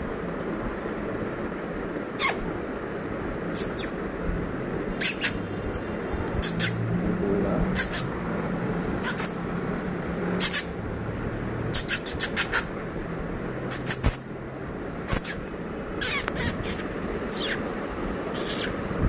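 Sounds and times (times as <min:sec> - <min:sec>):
bird chirping: 0:05.0 - 0:06.8, 0:09.0 - 0:09.4, 0:10.4 - 0:10.7, 0:11.7 - 0:12.7, 0:16.0 - 0:17.6, 0:18.3 - 0:18.8.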